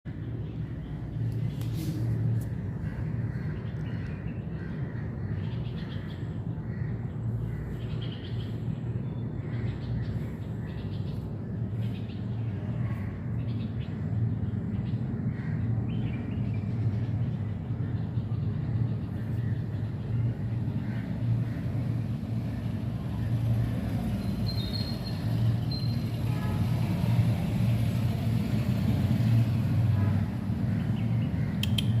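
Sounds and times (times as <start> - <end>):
steady low rumble: 0.1 - 24.4.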